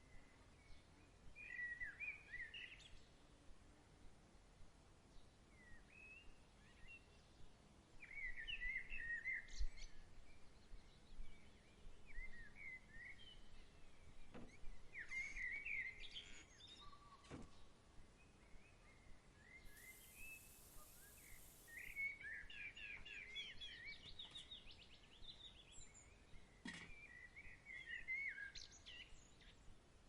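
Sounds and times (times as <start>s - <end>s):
songbirds chirping: 5.1s - 29.8s
faint steady hiss: 19.4s - 23.2s.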